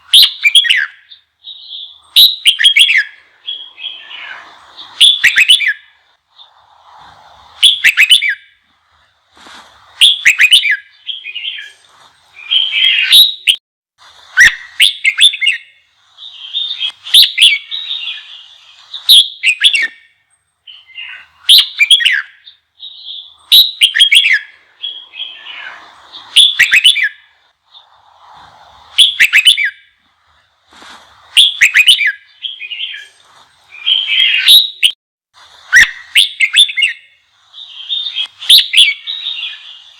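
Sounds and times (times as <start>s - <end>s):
bulbul whistled song: 0.0s - 13.6s, 14.2s - 35.0s, 35.6s - 39.9s.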